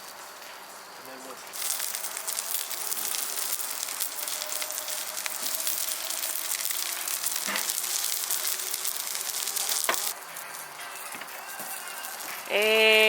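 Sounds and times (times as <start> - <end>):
food sizzling in a skillet: 0.0 - 13.0
sharp pops of frying: 1.5 - 13.0.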